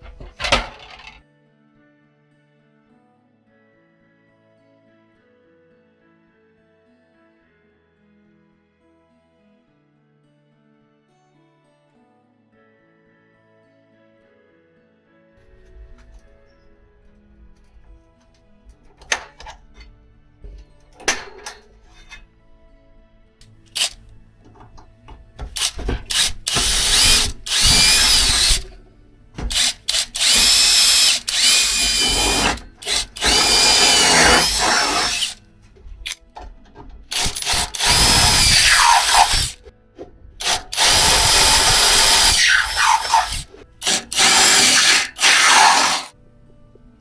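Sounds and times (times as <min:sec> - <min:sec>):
electric drill boring metal: 0:23.8 - 0:24.0, 0:25.4 - 0:28.8, 0:29.4 - 0:35.4, 0:37.1 - 0:39.7, 0:40.4 - 0:46.1.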